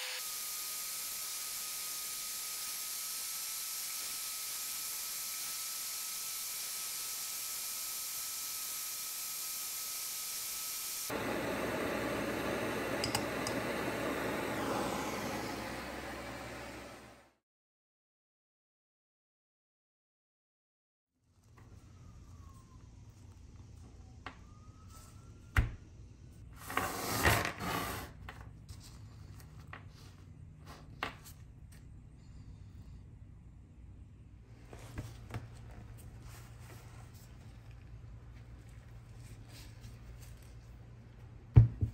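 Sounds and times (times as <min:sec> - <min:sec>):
gas torch hissing: 0:11.1 - 0:17.2.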